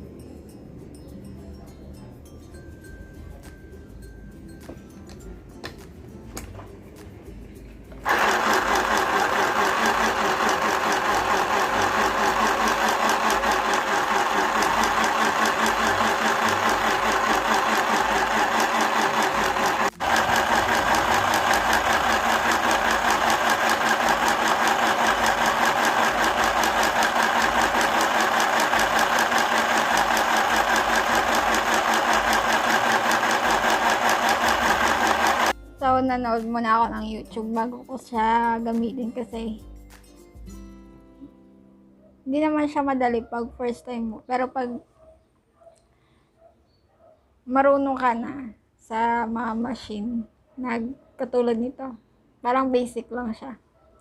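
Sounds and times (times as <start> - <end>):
sewing machine stitching: 8.0 - 35.6.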